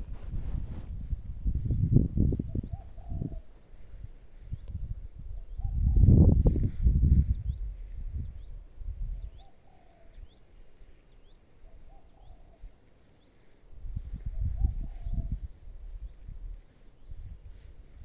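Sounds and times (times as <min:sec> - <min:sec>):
low rustling thuds: 0:00.0 - 0:02.2
insects droning: 0:00.0 - 0:18.0.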